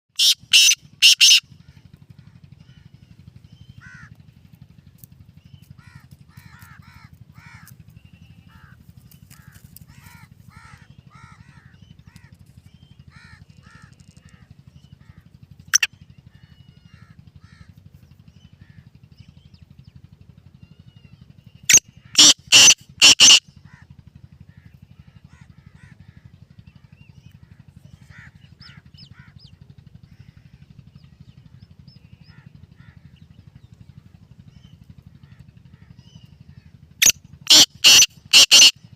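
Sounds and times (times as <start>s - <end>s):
francolin harsh calls: 0.1s - 1.4s, 21.7s - 23.4s, 37.0s - 38.8s
small birds chirping: 0.1s - 1.4s, 4.9s - 17.0s, 21.4s - 23.4s, 37.5s - 38.7s
steady low hum: 0.2s - 38.9s.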